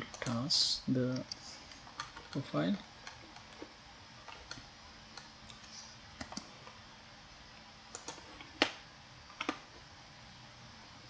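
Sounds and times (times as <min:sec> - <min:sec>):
computer mouse clicking: 0:01.1 - 0:06.8, 0:07.9 - 0:09.6.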